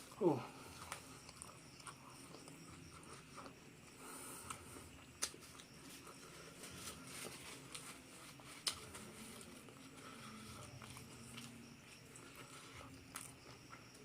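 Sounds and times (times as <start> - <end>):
soft chewing: 0.0 - 14.0.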